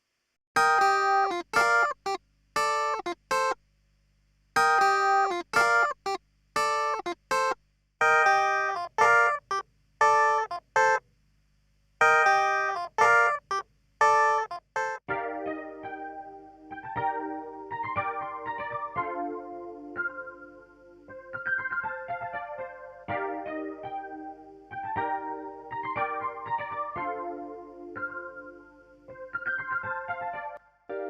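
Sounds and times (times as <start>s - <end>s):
sustained keyboard-like chord: 6.6s - 11.0s, 12.0s - 31.0s.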